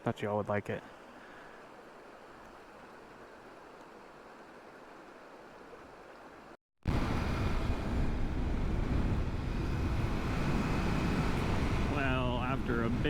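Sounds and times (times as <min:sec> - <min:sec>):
creek rushing: 0:00.7 - 0:08.4, 0:09.2 - 0:13.0
motorcycle road rumble: 0:06.9 - 0:13.0
wind noise: 0:06.9 - 0:13.0.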